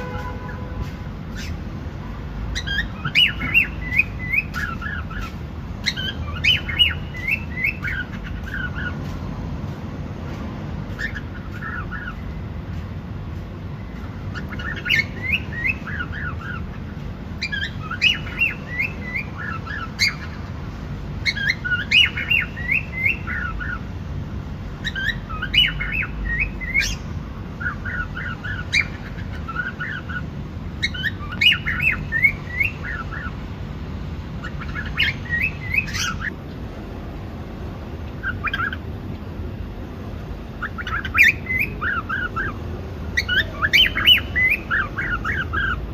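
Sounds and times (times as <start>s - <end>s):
cockatiel chirping: 2.5s - 8.9s, 11.0s - 12.2s, 14.3s - 16.8s, 17.4s - 20.4s, 21.2s - 23.8s, 24.8s - 27.0s, 27.6s - 30.2s, 30.8s - 33.3s, 34.4s - 36.4s, 38.2s - 38.8s, 40.6s - 42.6s, 43.2s - 45.8s.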